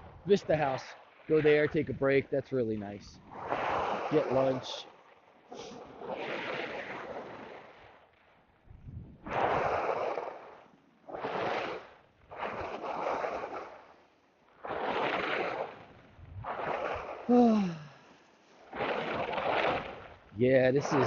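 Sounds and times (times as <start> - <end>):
skis scraping icy snow: 12.4 - 13.8.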